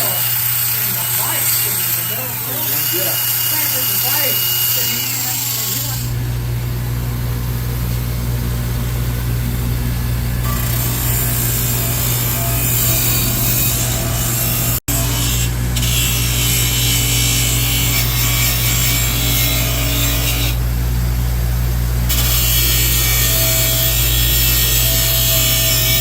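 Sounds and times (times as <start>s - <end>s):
power sander on metal: 0.0s - 6.2s, 10.4s - 20.6s, 22.0s - 26.0s.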